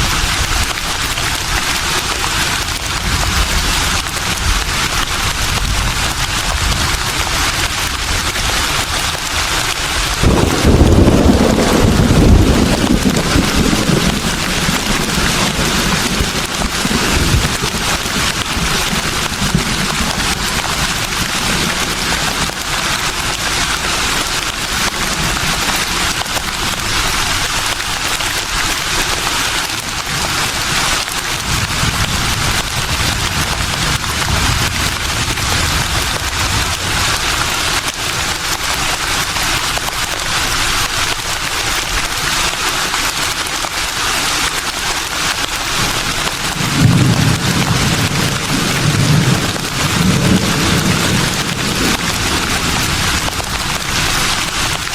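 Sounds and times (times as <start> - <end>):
breeze rustling leaves: 0.0 - 54.9
wind gusts on microphone: 2.2 - 23.0.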